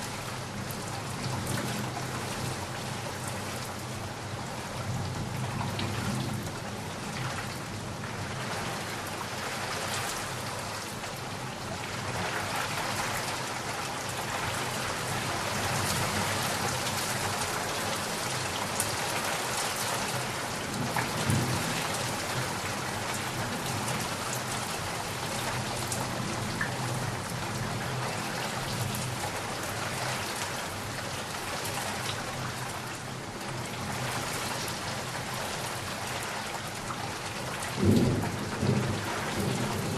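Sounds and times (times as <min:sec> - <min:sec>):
rain falling: 0:00.0 - 0:39.9
thunder rumbling: 0:37.8 - 0:39.9.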